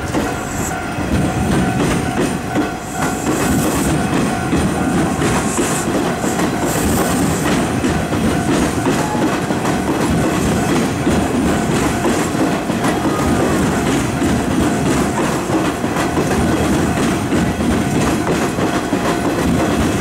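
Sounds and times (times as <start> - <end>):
crossing warning alarm: 0.0 - 20.0
train wheels clattering: 0.0 - 20.0.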